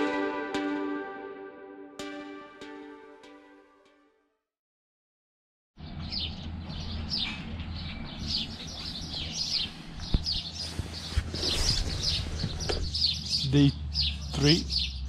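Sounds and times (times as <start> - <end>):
birds chirping: 5.8 - 15.0.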